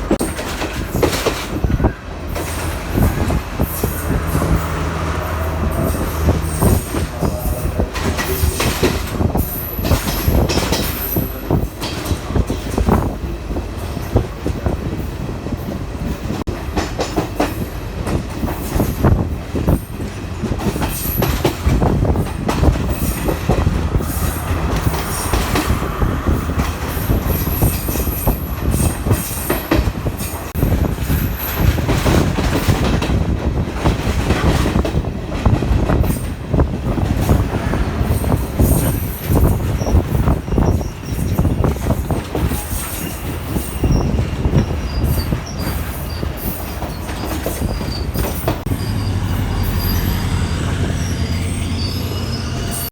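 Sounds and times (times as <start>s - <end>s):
train wheels clattering: 0.0s - 52.9s
high-pitched wheel squeals: 3.0s - 8.6s, 38.1s - 52.9s.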